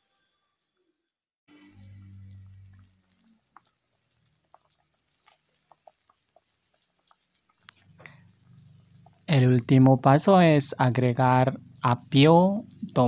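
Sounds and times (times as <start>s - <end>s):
low hum: 1.5s - 3.5s
broth simmering with small pops: 1.5s - 13.0s.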